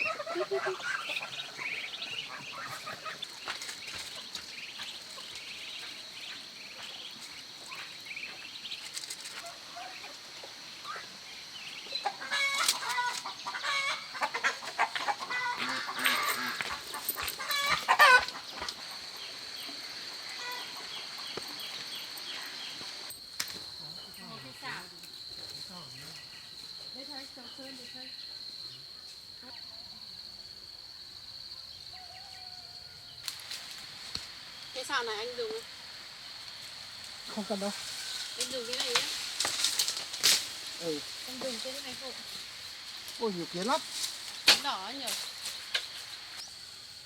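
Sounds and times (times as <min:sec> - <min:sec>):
chickens clucking and calling: 0:00.0 - 0:22.2
high insect drone: 0:00.0 - 0:47.0.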